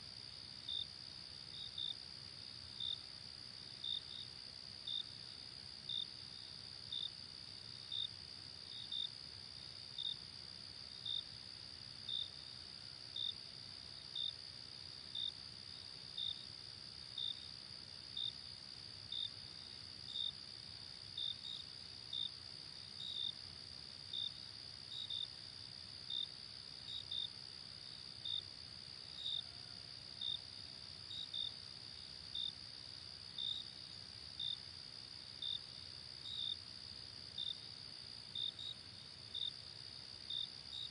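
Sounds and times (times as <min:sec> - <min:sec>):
faint low hiss: 0:00.0 - 0:40.9.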